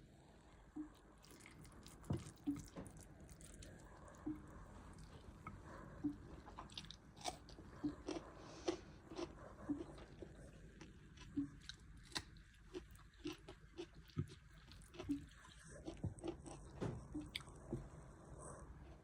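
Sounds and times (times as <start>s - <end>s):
person chewing food: 0.7s - 19.0s.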